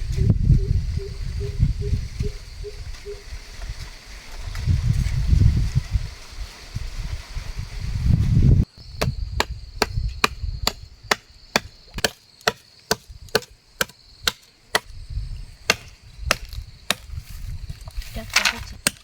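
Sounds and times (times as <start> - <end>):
tool chopping into wood: 9.0 - 14.9, 15.7 - 17.2, 18.8 - 19.0.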